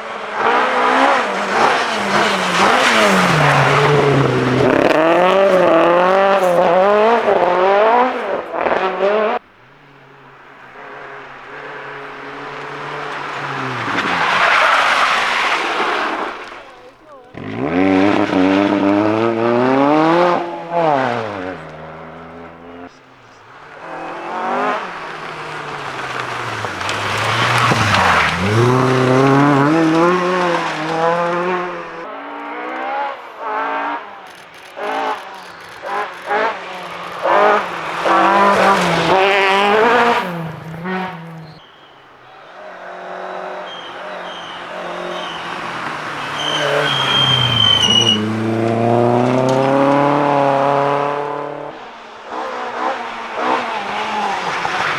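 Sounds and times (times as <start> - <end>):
sharp engine blips and cracks: 0.0 - 42.4, 43.8 - 50.4
rally car engines revving: 0.0 - 54.9.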